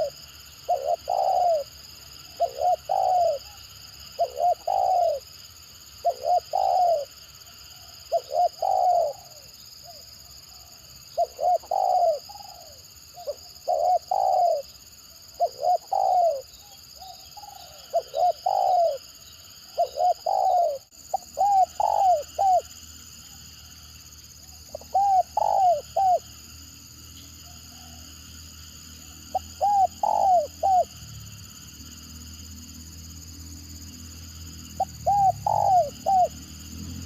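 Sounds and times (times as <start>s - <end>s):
dove cooing: 0.0s - 3.6s, 4.2s - 5.3s, 6.0s - 10.0s, 10.6s - 22.7s, 24.7s - 26.3s, 29.3s - 31.0s, 34.8s - 36.4s.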